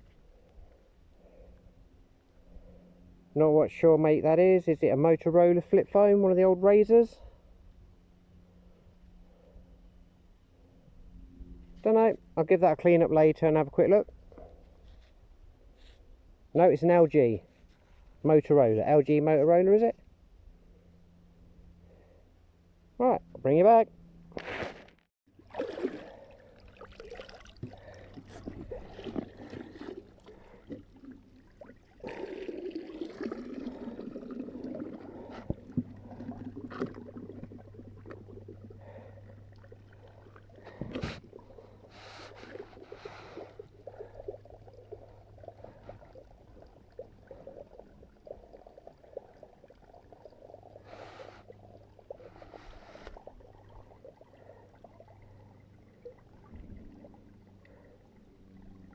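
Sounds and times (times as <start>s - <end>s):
water trickling and splashing: 25.3s - 58.9s.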